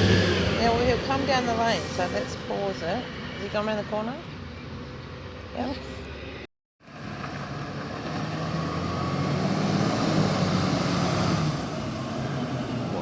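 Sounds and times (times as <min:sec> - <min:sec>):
garbage truck diesel engine: 0:00.0 - 0:03.3, 0:06.8 - 0:13.0.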